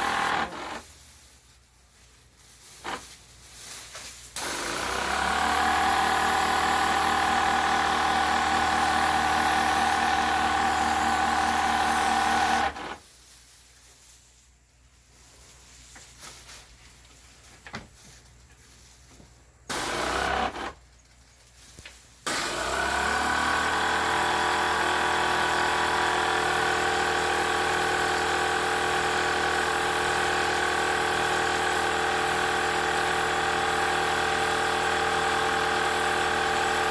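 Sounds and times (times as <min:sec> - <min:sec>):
pressure washer motor drone: 0:00.0 - 0:00.8, 0:04.4 - 0:12.9, 0:22.3 - 0:36.9.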